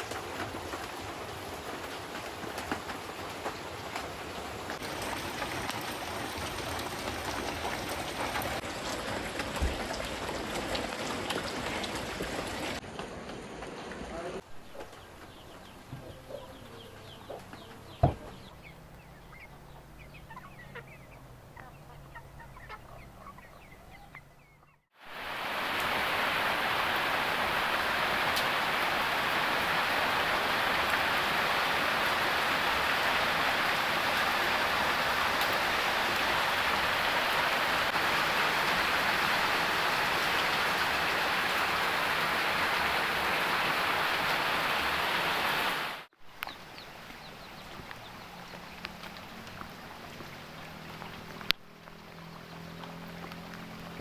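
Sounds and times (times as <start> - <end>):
heavy rain downpour: 0.0 - 12.8, 25.0 - 54.0
faint chicken clucking: 14.2 - 18.6, 19.2 - 24.8
sharp knock: 18.0 - 18.4.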